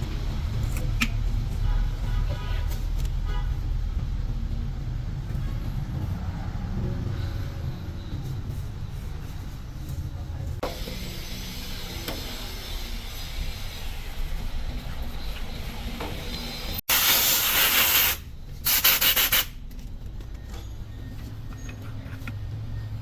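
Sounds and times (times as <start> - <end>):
loud hissing blast: 16.7 - 19.5.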